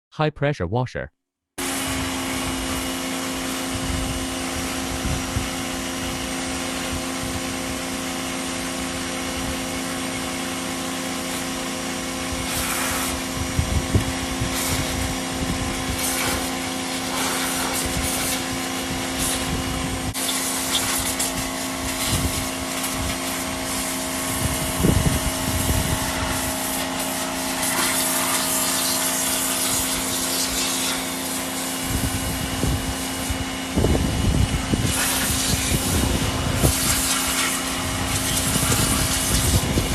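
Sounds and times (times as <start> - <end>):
pressure washer motor humming: 1.6 - 39.9
water jet hissing: 12.4 - 13.3, 14.4 - 15.2, 15.8 - 32.1, 34.8 - 39.7.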